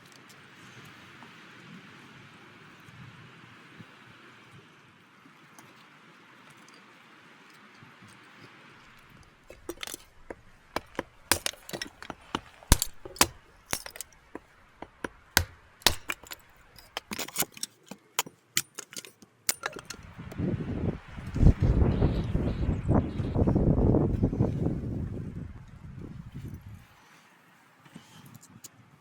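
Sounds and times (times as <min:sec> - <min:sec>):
faint outdoor ambience: 0:00.0 - 0:29.0
sharp clicks clinks and knocks: 0:09.5 - 0:20.0.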